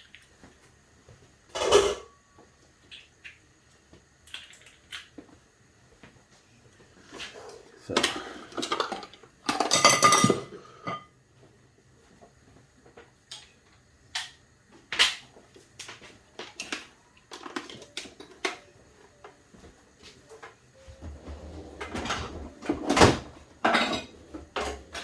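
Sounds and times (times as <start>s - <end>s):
dishes and utensils clinking: 1.6s - 2.2s, 8.0s - 11.1s, 21.8s - 25.0s
kitchenware clattering scrape: 8.0s - 11.1s, 21.2s - 25.0s.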